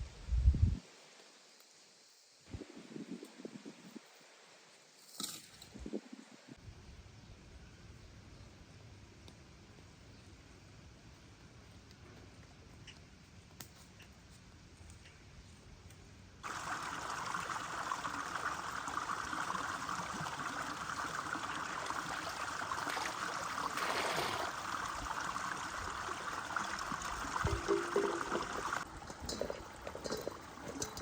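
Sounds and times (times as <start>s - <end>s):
water trickling: 16.4s - 31.0s.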